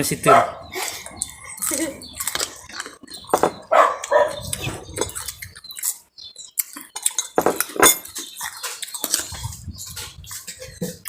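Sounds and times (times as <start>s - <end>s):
utensils clattering against dishes: 6.9s - 11.0s.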